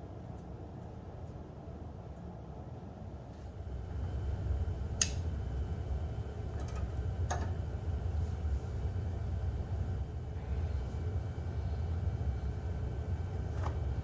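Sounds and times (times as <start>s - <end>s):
steady low rumble: 3.5s - 14.0s.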